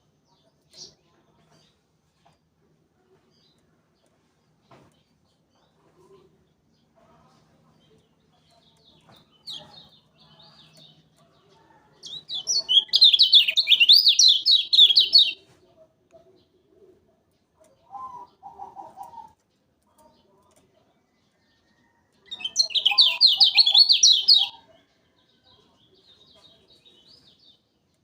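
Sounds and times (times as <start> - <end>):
bird chirps: 12.0 - 15.4, 21.8 - 24.6
fast high bird song: 12.0 - 15.4, 21.8 - 24.7.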